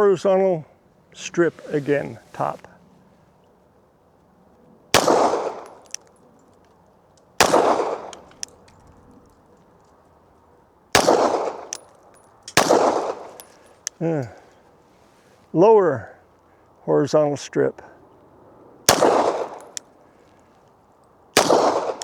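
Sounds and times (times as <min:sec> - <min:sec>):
pistol shots with echo: 0:04.9 - 0:06.0, 0:07.4 - 0:08.5, 0:10.9 - 0:11.9, 0:12.5 - 0:13.6, 0:18.9 - 0:19.8, 0:21.4 - 0:22.0.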